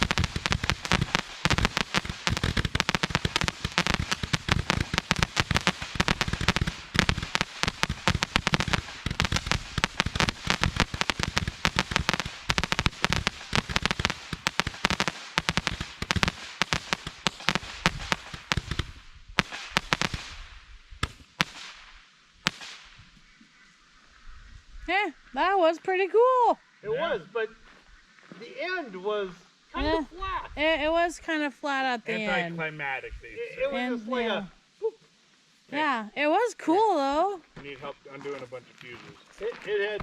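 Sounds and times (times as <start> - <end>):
firework cracks and pops: 0.0 - 23.2.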